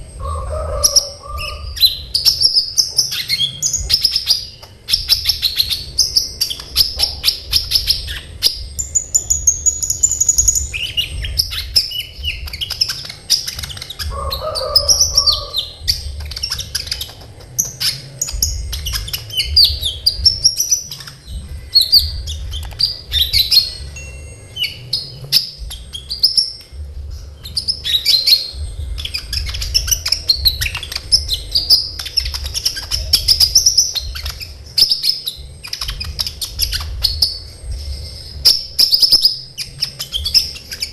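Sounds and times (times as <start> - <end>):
bird singing chirps and trills: 0.0 - 40.9
faint low hum: 0.0 - 40.9
lower bird call: 0.1 - 17.2.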